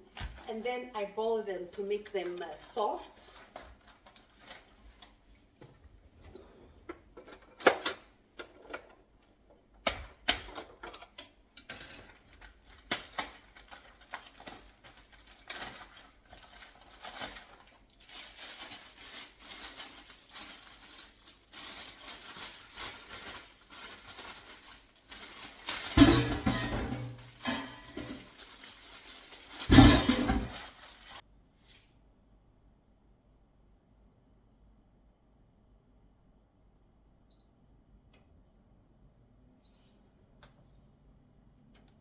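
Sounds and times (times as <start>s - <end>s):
bowl and utensils clinking: 25.9s - 28.3s.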